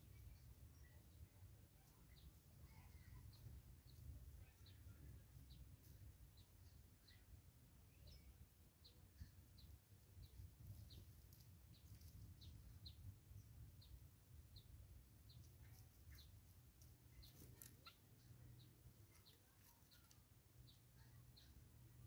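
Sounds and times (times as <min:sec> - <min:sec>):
wild birds chirping: 0:00.0 - 0:22.0.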